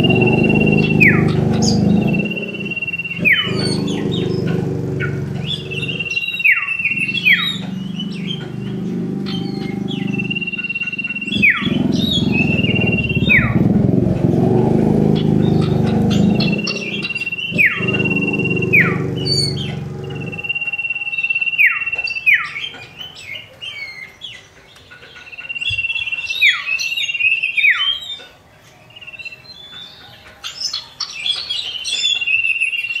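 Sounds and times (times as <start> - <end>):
bird whistling call: 0.0 - 4.5, 5.4 - 13.6.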